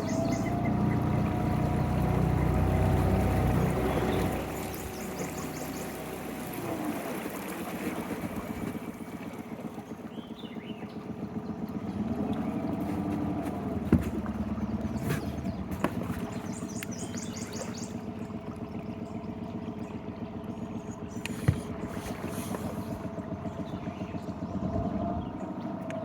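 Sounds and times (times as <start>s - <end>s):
bird chirping: 0.0s - 1.1s, 3.8s - 6.0s, 16.4s - 18.0s
outboard motor running slowly: 0.0s - 26.0s.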